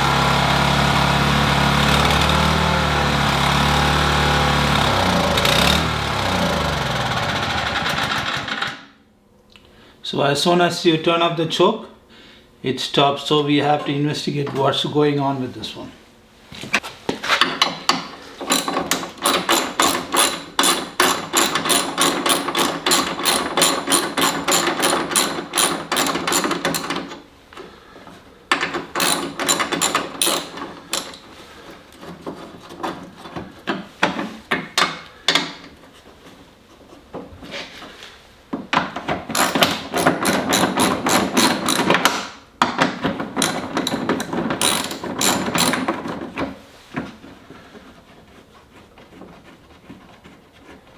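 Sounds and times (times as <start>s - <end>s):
ratchet wrench clicking: 18.5s - 26.9s, 29.0s - 31.2s, 39.4s - 42.0s, 43.4s - 45.8s.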